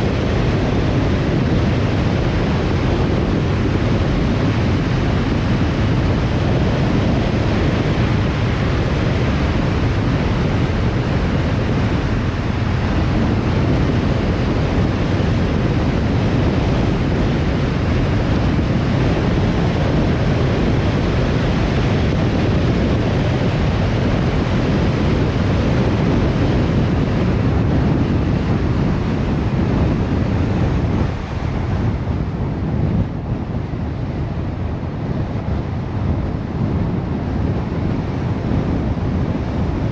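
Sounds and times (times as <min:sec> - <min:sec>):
car road and wind noise: 0:00.0 - 0:39.9.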